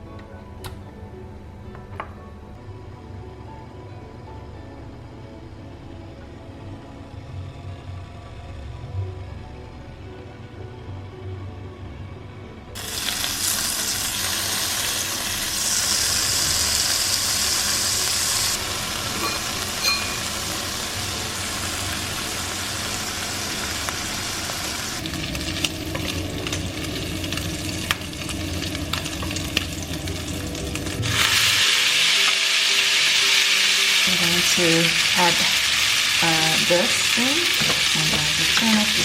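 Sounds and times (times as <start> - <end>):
bacon sizzling in a pan: 12.8 - 39.0.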